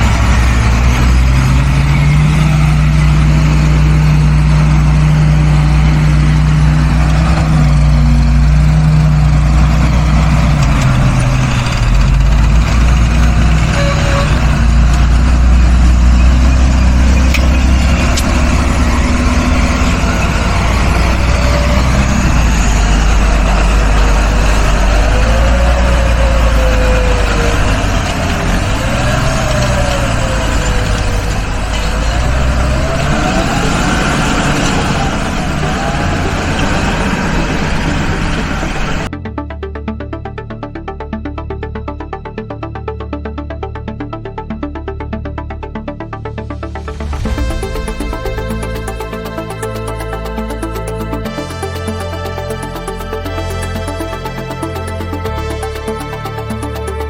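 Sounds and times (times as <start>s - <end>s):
tractor engine running under load: 0.0s - 39.3s, 46.2s - 57.0s
wavering whine: 46.6s - 53.5s.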